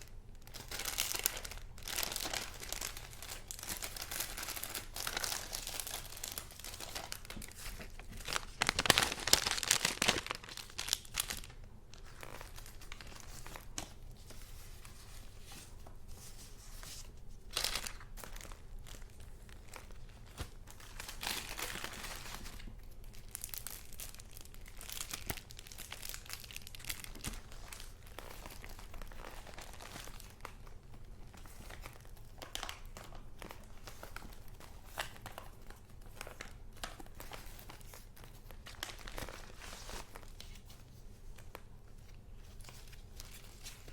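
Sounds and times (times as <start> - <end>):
paper and plastic sleeves rustling: 0.0 - 43.9.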